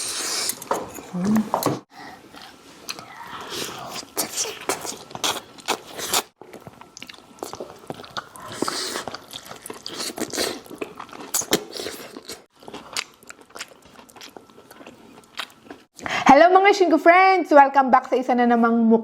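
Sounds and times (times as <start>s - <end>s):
crunching and chewing fried chicken: 2.9s - 15.9s.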